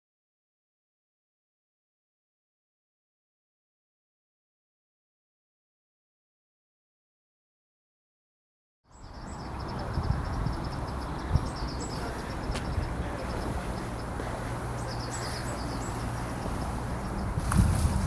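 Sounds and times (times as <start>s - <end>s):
songbird twittering: 8.9s - 17.9s
low rumble of background noise: 9.0s - 18.0s.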